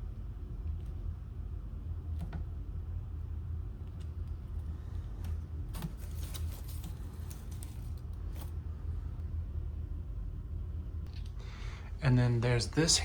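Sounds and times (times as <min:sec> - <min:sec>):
low hum: 0:00.0 - 0:13.0
hands handling hamper clicks and rustling: 0:05.7 - 0:08.5.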